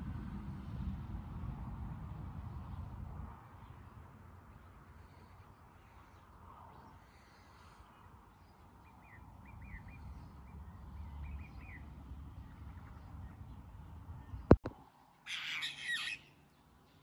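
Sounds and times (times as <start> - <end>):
low outdoor rumble: 0.0 - 17.0
faint bird chirps: 15.2 - 17.0.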